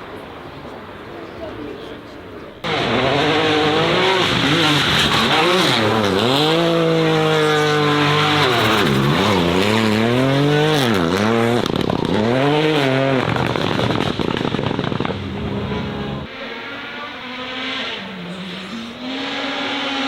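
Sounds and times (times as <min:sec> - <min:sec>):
race car engine running hard: 0:02.6 - 0:20.0
rushing noise: 0:12.9 - 0:17.1.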